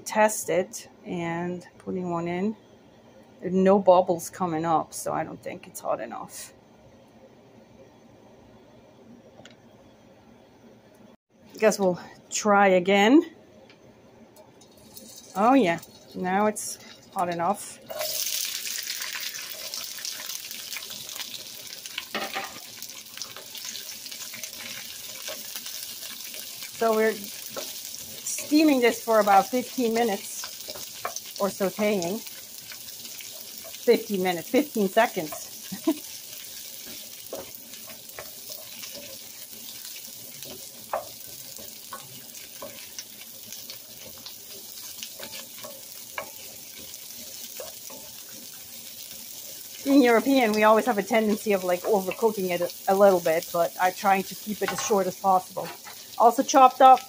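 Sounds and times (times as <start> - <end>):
vegetables sizzling in hot oil: 14.7 - 57.0
wooden spatula scraping wok: 14.7 - 57.0.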